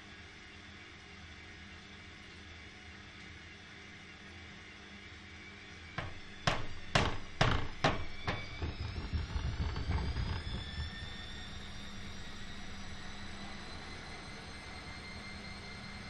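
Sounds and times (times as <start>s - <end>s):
washing machine knocking: 6.0s - 10.8s
motor whine: 6.2s - 16.0s.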